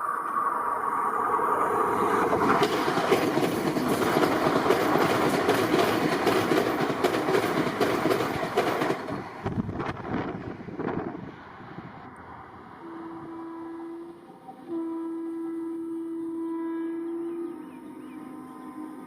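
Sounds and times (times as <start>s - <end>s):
steady high tone: 0.0s - 4.0s, 11.4s - 19.0s
train wheels clacking over rail joints: 2.1s - 10.5s.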